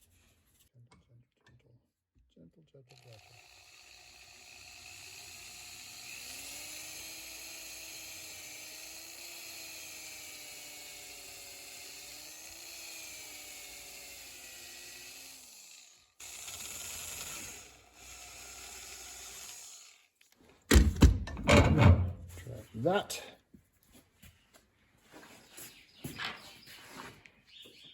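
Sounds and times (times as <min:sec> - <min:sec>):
power tool motor running: 0:02.9 - 0:20.2.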